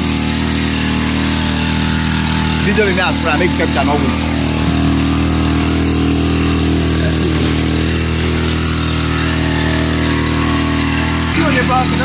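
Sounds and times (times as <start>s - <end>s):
small petrol engine running: 0.0s - 12.0s.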